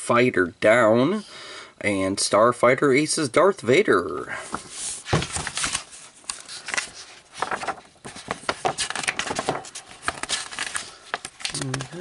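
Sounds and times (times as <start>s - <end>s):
paper and packaging rustling: 4.4s - 12.0s.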